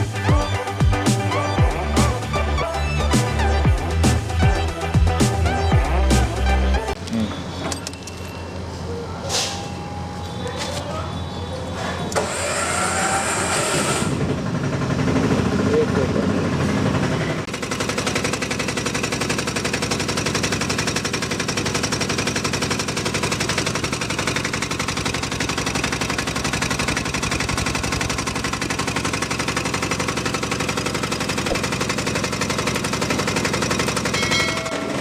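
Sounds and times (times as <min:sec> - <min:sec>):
diesel engine idling with clatter: 0:10.5 - 0:35.0.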